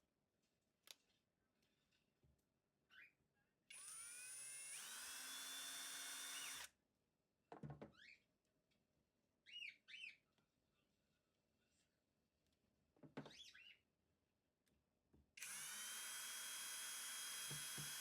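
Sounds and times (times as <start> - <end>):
small electric motor spinning: 3.7 - 6.7, 15.4 - 18.0.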